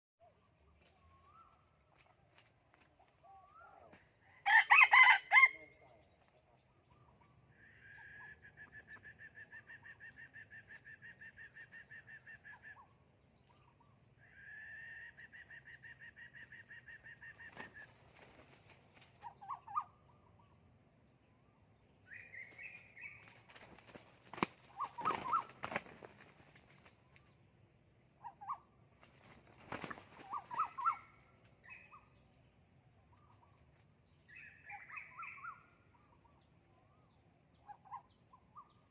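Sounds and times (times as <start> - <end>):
rooster crowing: 4.4 - 5.8
wings flapping: 17.3 - 19.3, 22.4 - 27.1, 29.0 - 31.0
short bird calls: 28.2 - 32.2.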